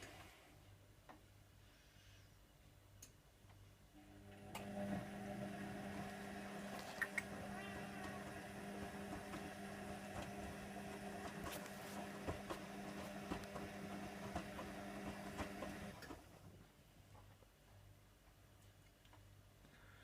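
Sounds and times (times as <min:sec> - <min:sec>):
washing machine drum motor humming: 0:04.1 - 0:16.2.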